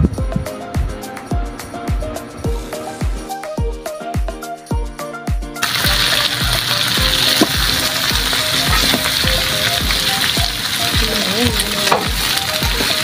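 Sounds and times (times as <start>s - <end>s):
background music with steady beat: 0.0s - 13.0s
prawns sizzling in a wok: 5.6s - 13.0s.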